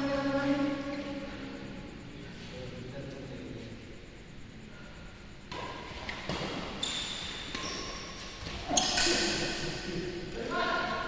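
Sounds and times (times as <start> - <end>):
sneakers squeaking on floor: 5.6 - 9.5.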